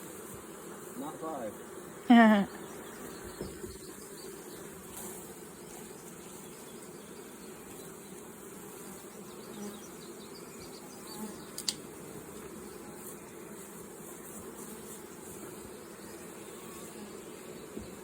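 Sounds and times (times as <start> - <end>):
honeybees buzzing: 0.0 - 18.0
sharp click: 11.5 - 11.8.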